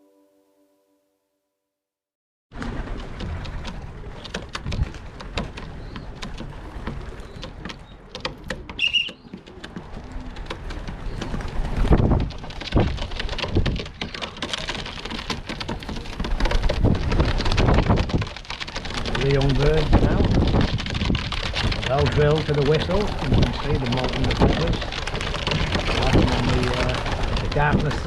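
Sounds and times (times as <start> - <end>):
crackling clicks: 2.6 - 28.0
gusty wind on microphone: 9.9 - 14.1, 15.0 - 28.0.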